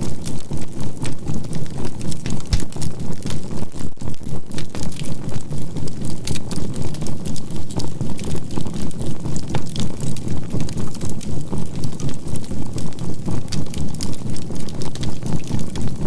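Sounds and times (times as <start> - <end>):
burning charcoal crackling: 0.0 - 16.0.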